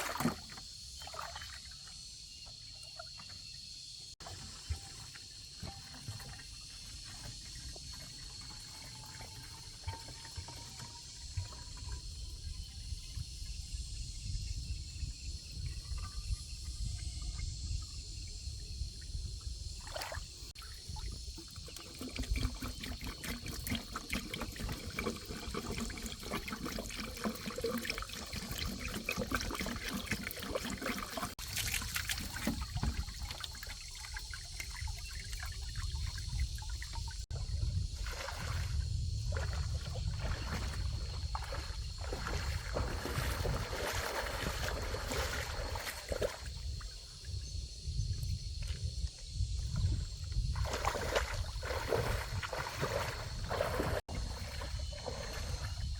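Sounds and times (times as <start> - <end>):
liquid trickling and pouring: 4.2 - 12.2, 20.5 - 38.6, 39.3 - 46.5.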